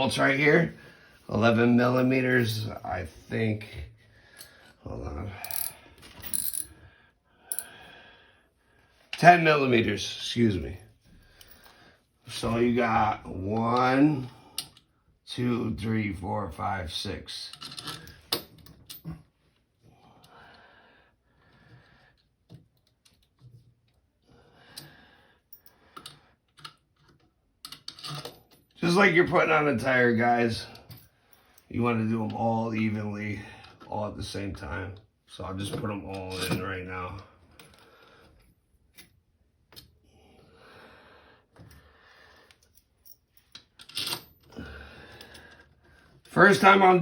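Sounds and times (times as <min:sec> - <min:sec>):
metal bolts and tools clicking: 0:17.5 - 0:19.2, 0:25.5 - 0:28.7, 0:42.5 - 0:44.5.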